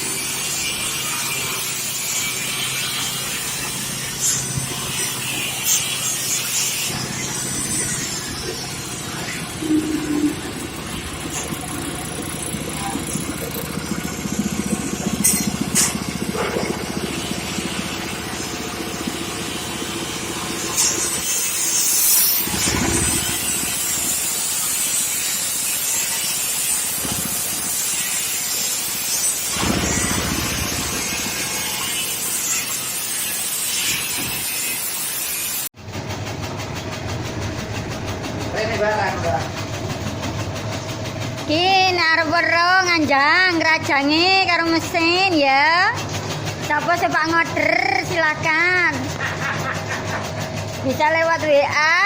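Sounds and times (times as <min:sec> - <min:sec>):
shredding machine running with hiss: 0:00.0 - 0:52.0.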